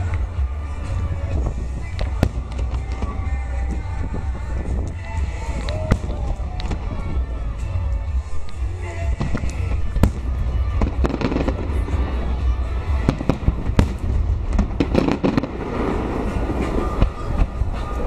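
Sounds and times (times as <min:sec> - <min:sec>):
fireworks bangs and pops: 0:01.3 - 0:03.4, 0:09.2 - 0:12.2, 0:13.0 - 0:18.0.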